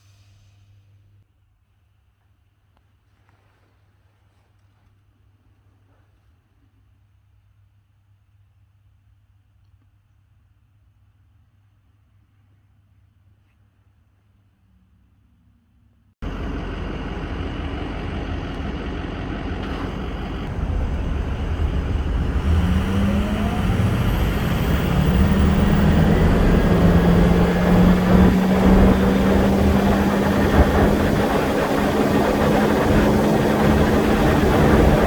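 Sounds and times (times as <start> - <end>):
diesel engine running: 16.2 - 35.0.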